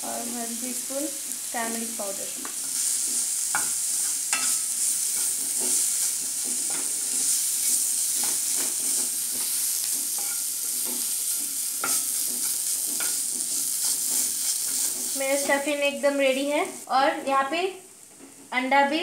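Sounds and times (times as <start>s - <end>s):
meat sizzling in oil: 0.0s - 17.2s
spatula scraping a pan: 2.5s - 15.8s.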